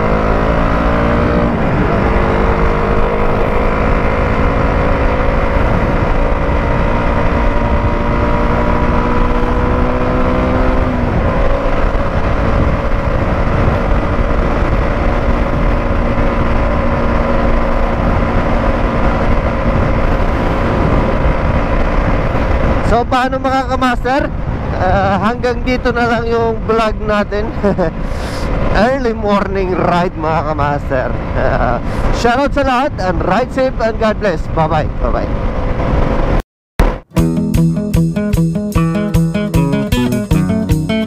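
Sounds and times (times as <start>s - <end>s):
motorcycle engine revving: 0.0s - 22.9s
wind noise: 0.0s - 37.2s.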